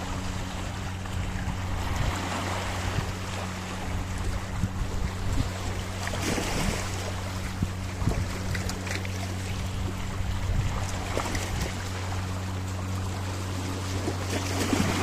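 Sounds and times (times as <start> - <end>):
steady low hum: 0.0 - 15.0
sea waves splashing on rocks: 6.0 - 7.1, 13.8 - 15.0.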